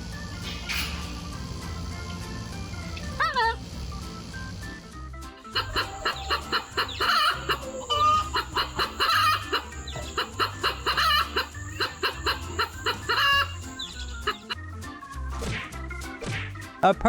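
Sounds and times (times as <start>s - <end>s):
clucking bird calls: 0.4s - 2.2s, 5.5s - 14.6s.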